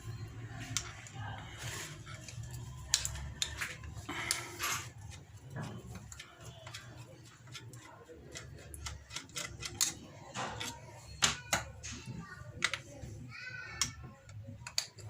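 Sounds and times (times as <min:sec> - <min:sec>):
clicks and taps of hand tools: 0:02.8 - 0:04.4, 0:05.1 - 0:12.9, 0:13.7 - 0:15.0.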